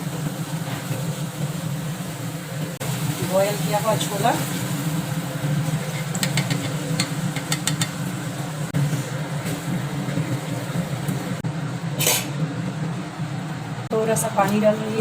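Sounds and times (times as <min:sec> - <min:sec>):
spoon clicking against pan: 0:06.2 - 0:08.0.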